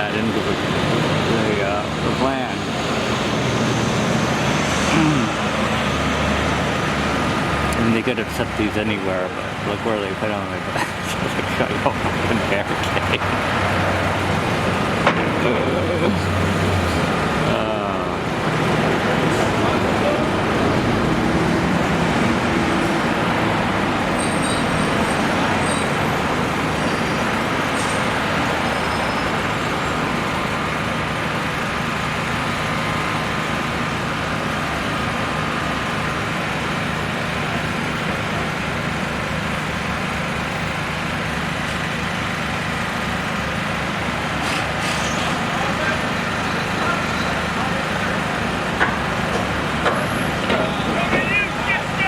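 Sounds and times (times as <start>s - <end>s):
road traffic noise: 0.0s - 52.0s.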